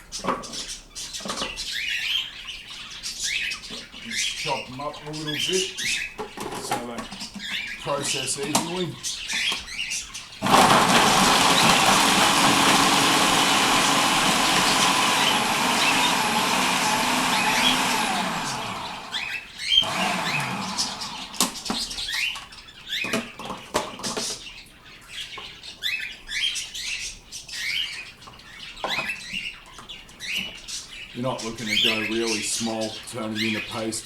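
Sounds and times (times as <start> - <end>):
birds chirping and squawking: 0.0 - 34.0
food processor chopping: 10.4 - 22.1.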